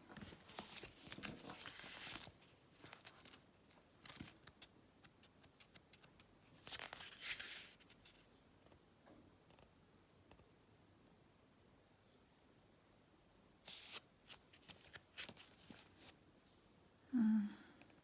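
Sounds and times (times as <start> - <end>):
cards sliding swish: 13.7 - 14.0.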